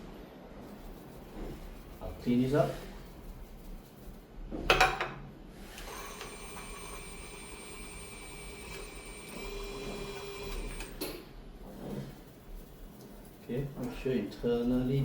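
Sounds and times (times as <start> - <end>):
small electric motor whine: 5.8 - 11.0.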